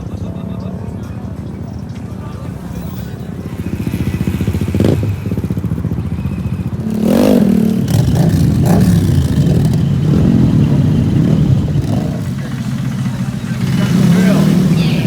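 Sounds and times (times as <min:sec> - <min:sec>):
mini bike engines running: 0:00.0 - 0:15.0
engine revving: 0:02.7 - 0:15.0.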